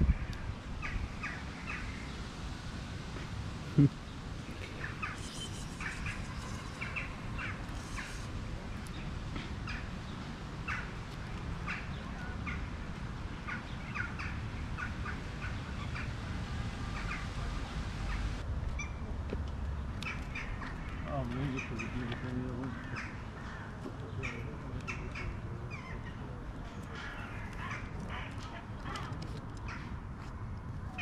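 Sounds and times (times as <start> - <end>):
small birds chirping: 3.8 - 16.2, 16.9 - 19.0
low outdoor rumble: 6.1 - 21.0.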